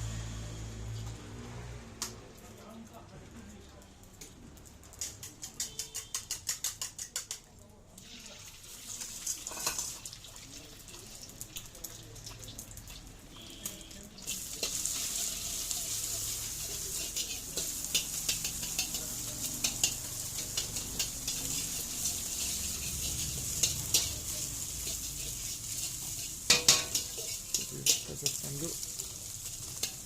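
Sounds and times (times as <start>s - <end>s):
food sizzling in a pan: 3.9s - 30.0s
metal utensil clicking on pan: 4.2s - 7.6s, 9.0s - 10.0s, 13.6s - 30.0s.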